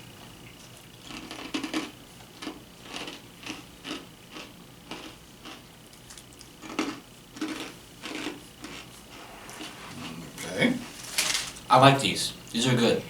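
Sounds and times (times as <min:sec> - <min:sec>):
crunchy crackers being chewed: 0:00.2 - 0:09.2.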